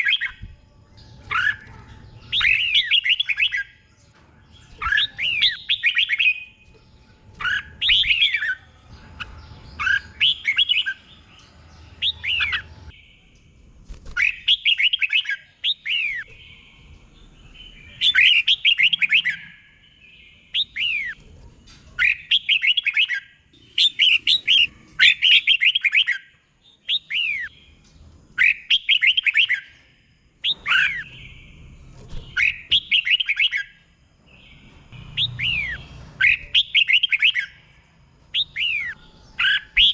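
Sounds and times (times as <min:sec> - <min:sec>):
bird singing quick notes: 0:22.0 - 0:26.2.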